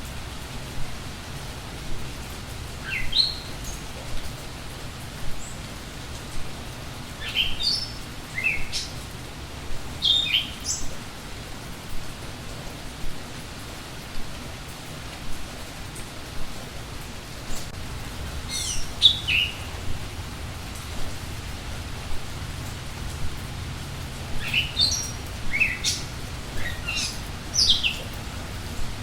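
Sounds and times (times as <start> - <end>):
steady rain: 0.0 - 29.0
songbird calling: 2.8 - 3.8, 7.2 - 9.0, 10.0 - 10.9, 18.5 - 19.8, 24.4 - 28.2.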